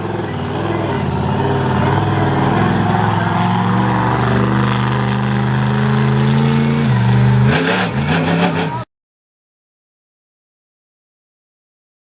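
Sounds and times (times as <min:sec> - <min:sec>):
truck engine revving: 0:00.0 - 0:08.9.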